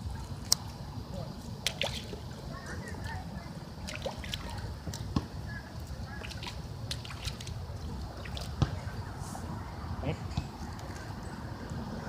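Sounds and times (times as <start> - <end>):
goose splashing in water: 3.8 - 5.0, 6.1 - 8.8.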